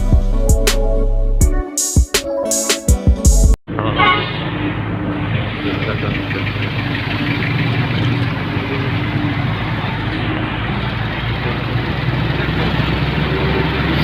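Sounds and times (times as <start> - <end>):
road noise rushing: 3.7 - 14.0
vehicle engine running: 3.7 - 14.0.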